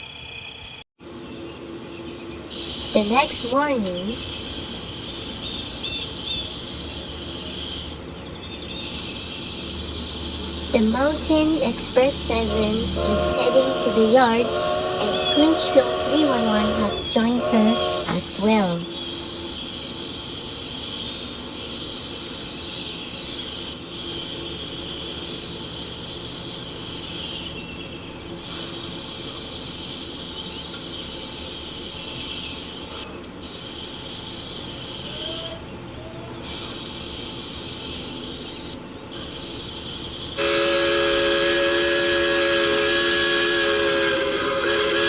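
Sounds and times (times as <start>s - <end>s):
steam locomotive hissing: 2.5s - 8.1s, 8.8s - 21.6s, 39.2s - 45.0s
steam whistle chord: 9.6s - 19.1s, 40.4s - 45.0s.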